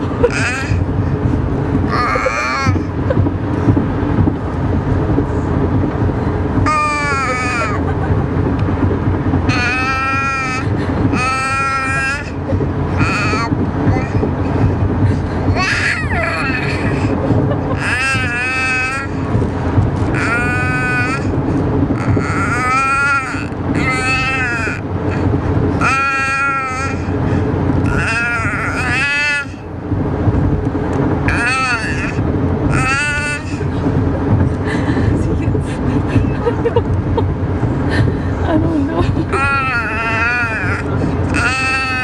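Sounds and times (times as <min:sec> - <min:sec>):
baby squealing: 0:00.0 - 0:00.8, 0:01.9 - 0:03.0, 0:06.7 - 0:07.9, 0:09.5 - 0:12.4, 0:13.0 - 0:14.3, 0:15.5 - 0:19.2, 0:20.1 - 0:21.3, 0:21.9 - 0:27.2, 0:27.8 - 0:29.7, 0:31.3 - 0:33.7, 0:39.3 - 0:42.0
steady low rumble: 0:00.0 - 0:42.0.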